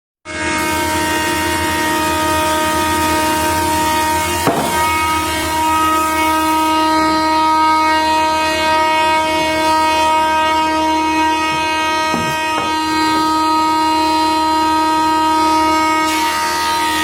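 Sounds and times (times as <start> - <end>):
woodworking machine whining: 0.4 - 17.0
brief knocks: 4.4 - 5.0.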